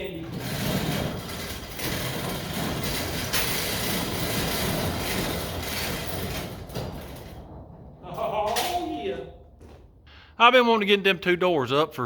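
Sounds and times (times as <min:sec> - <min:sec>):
garage door rattling on tracks: 0:00.0 - 0:09.6.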